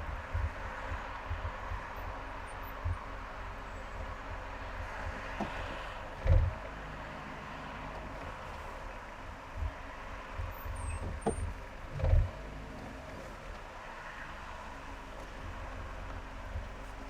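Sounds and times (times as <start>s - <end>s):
short low thumps: 0.0s - 3.2s
car road and engine noise: 0.0s - 17.0s.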